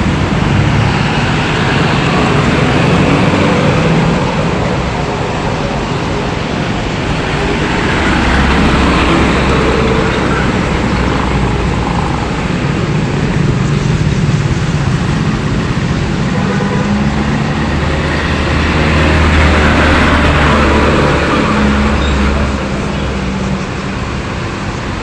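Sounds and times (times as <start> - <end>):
road traffic passing: 0.0 - 25.0.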